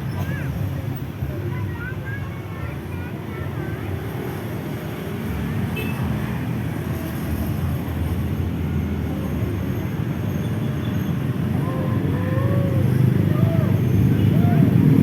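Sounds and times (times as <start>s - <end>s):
airliner engines rumbling: 11.1s - 15.0s.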